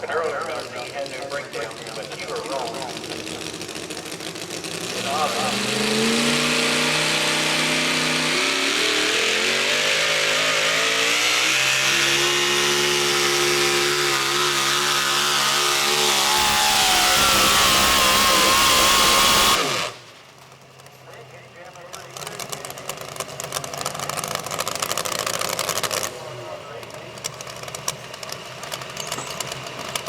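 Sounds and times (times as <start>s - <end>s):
truck engine revving hard: 0.0s - 20.5s, 22.1s - 30.0s.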